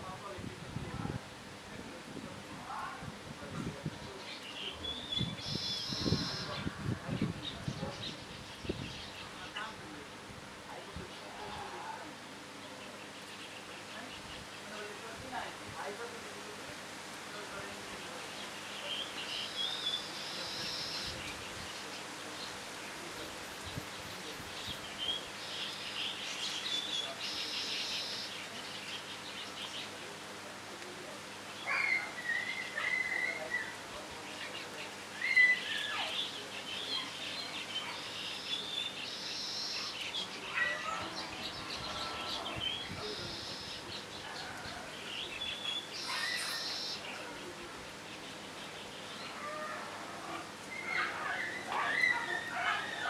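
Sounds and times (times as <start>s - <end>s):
birds chirping and calling: 3.9s - 10.0s, 18.0s - 30.1s, 31.2s - 53.0s.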